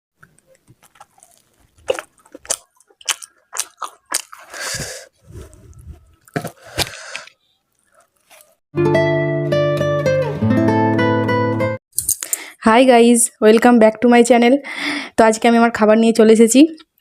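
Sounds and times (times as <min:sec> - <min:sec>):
crisp crunching bites: 0:00.2 - 0:04.8
chewing: 0:00.2 - 0:08.6.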